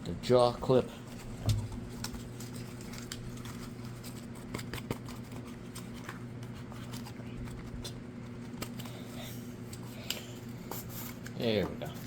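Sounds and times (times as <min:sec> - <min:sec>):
steady low hum: 0:00.0 - 0:12.0
packaging being opened by hand: 0:01.8 - 0:09.1.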